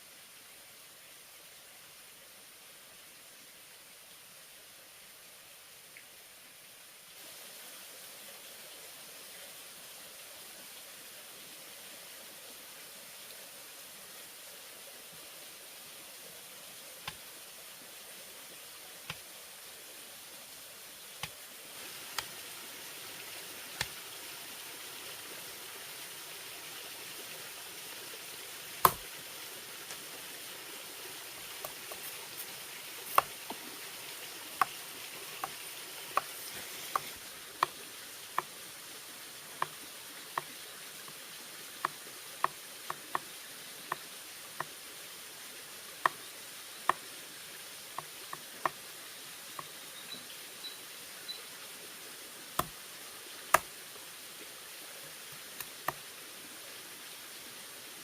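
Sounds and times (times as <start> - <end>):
steady background hiss: 0.0 - 58.0
knocks and taps on bamboo: 28.8 - 29.1, 33.1 - 33.6, 35.4 - 37.8, 39.6 - 39.8, 41.8 - 43.3, 43.9 - 44.8, 52.6 - 52.8, 53.5 - 53.7, 55.6 - 56.0.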